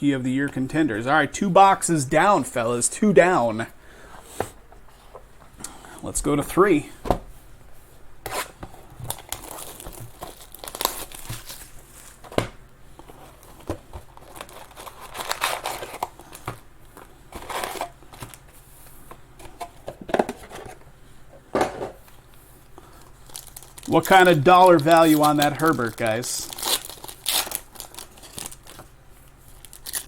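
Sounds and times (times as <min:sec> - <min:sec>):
plastic wrapping crinkling: 0:09.0 - 0:12.3, 0:13.0 - 0:18.5, 0:22.3 - 0:30.0.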